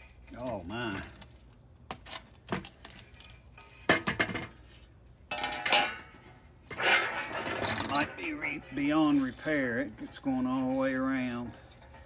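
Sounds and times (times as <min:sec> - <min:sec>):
metal rattling clatter: 0:06.7 - 0:08.9
metal muffler clinking and knocking: 0:06.7 - 0:09.0.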